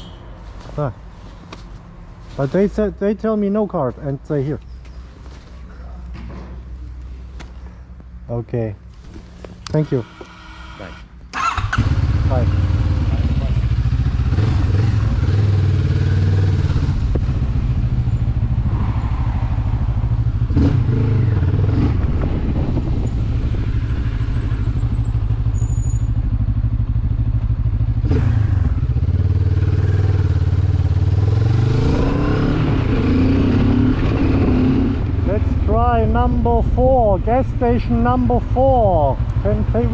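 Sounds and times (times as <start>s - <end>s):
motorcycle engine running: 11.4s - 18.7s, 19.7s - 31.5s.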